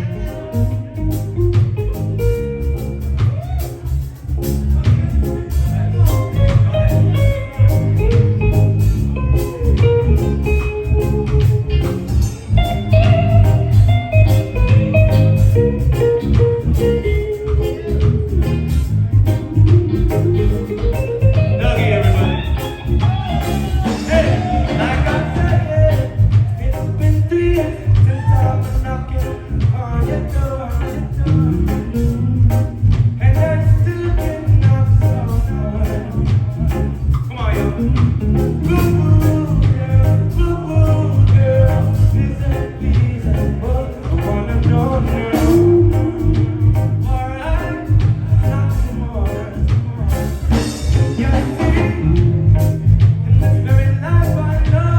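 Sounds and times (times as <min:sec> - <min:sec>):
person singing: 0:00.0 - 0:04.0, 0:20.0 - 0:54.9
heavy bass line: 0:00.0 - 0:54.9
live reggae band playing: 0:00.0 - 0:54.9.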